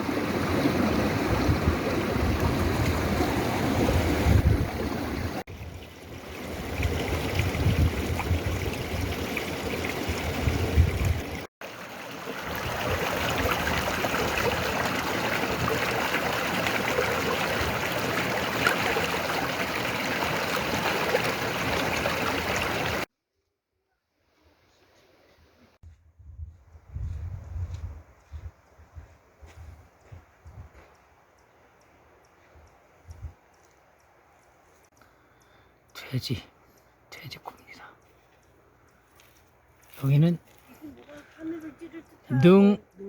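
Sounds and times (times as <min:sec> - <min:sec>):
stream flowing over rocks: 0:00.0 - 0:23.1
wind rumble on microphone: 0:00.3 - 0:11.5, 0:25.8 - 0:30.8, 0:33.0 - 0:33.4.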